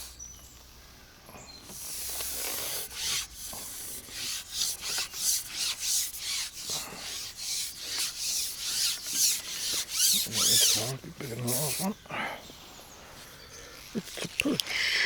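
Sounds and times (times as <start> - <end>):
fishing pole rubbing strokes: 1.7 - 12.0.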